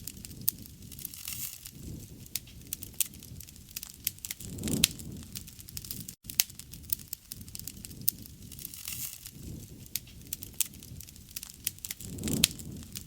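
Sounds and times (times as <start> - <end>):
campfire wood popping: 0.0 - 13.0
low rush of flame: 0.0 - 13.0.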